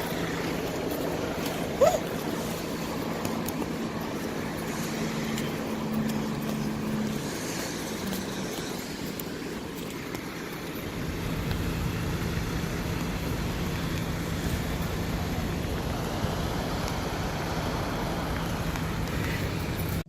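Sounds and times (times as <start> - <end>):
road and wind noise: 0.0 - 20.0
vehicle engine hum: 0.0 - 20.0.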